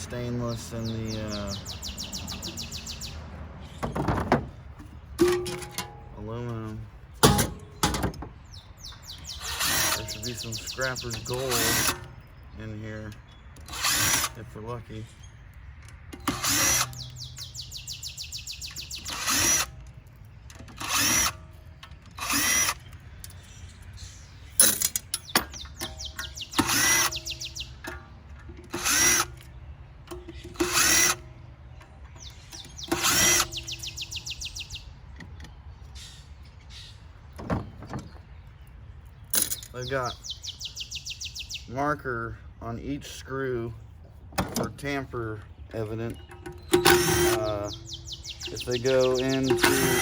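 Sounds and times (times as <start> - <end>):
cordless drill backing out screws: 9.4 - 12.1, 13.6 - 14.4, 20.5 - 23.4, 26.2 - 27.2, 28.6 - 29.4, 30.1 - 31.2, 32.6 - 33.7, 46.4 - 47.8, 48.5 - 50.0.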